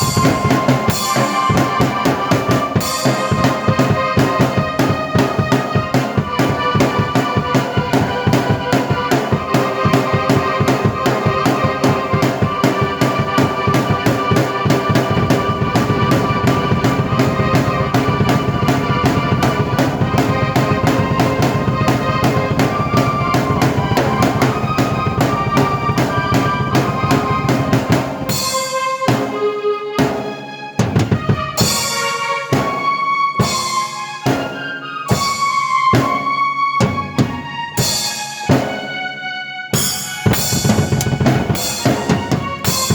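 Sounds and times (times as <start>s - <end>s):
held keyboard chords: 0.0s - 28.7s
fast drumming with kick and snare: 0.0s - 29.4s, 30.8s - 32.8s, 39.8s - 42.9s.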